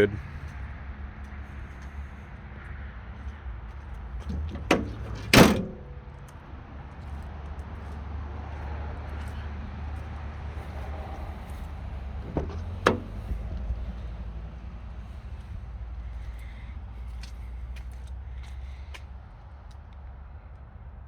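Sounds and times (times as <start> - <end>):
low steady rumble: 3.5 - 8.0, 10.3 - 17.8
tailgate slamming shut: 4.2 - 6.0, 12.2 - 13.5
light knocks: 12.2 - 13.4.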